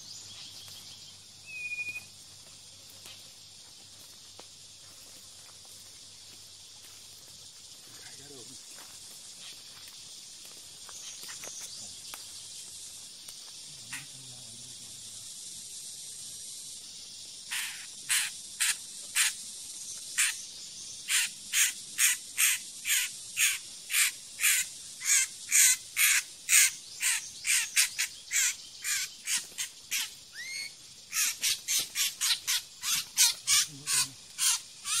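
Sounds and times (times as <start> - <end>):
high insect drone: 0.0 - 35.0
bird distress squawks: 17.5 - 19.4, 21.1 - 35.0.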